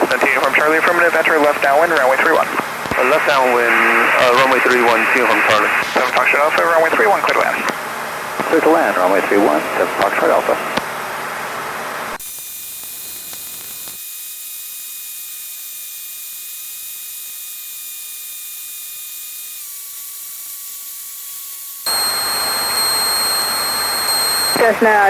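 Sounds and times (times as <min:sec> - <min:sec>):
radio static hiss: 0:00.0 - 0:07.8, 0:08.4 - 0:10.8, 0:21.9 - 0:25.0
thin whine tones: 0:21.9 - 0:25.0.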